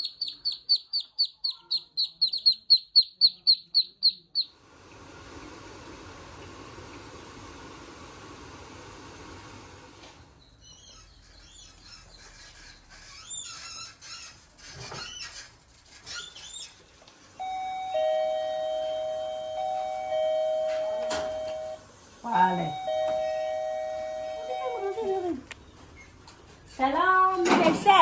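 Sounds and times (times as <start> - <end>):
small birds chirping: 0.0 - 4.6, 10.4 - 16.9
two-tone electronic chime: 17.4 - 21.8, 22.4 - 25.1.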